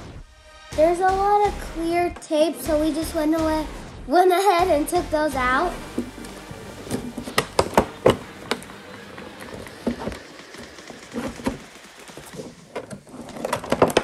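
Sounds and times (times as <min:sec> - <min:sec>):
packaging clicking and crackling: 0:06.9 - 0:14.0.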